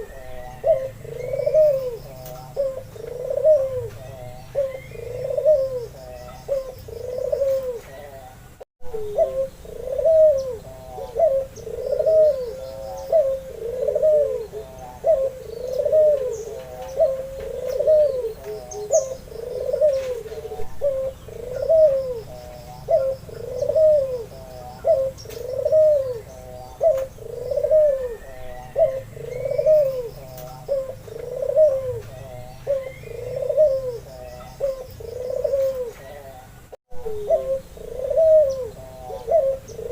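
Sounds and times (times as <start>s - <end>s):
dove cooing: 0.0s - 39.9s
small birds chirping: 0.0s - 39.9s.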